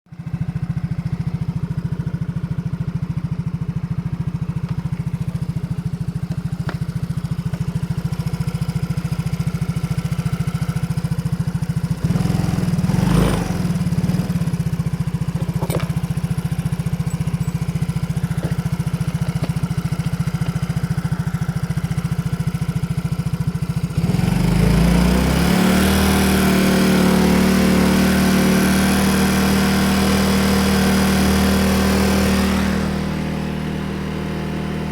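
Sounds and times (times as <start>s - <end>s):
scooter engine idling and revving: 0.1s - 34.9s.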